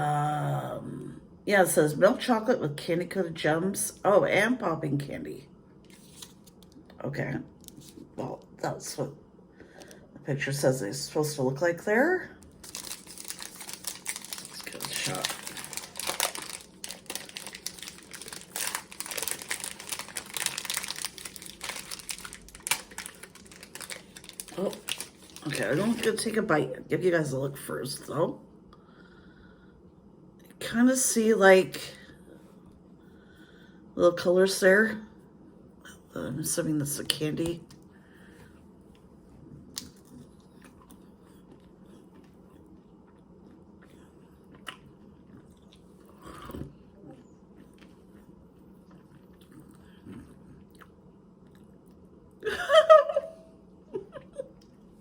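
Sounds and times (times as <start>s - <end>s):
popping candy cracks: 12.6s - 25.5s
chewing chocolate bar: 12.6s - 26.0s, 39.8s - 52.0s
wrapper crinkling: 12.6s - 26.4s.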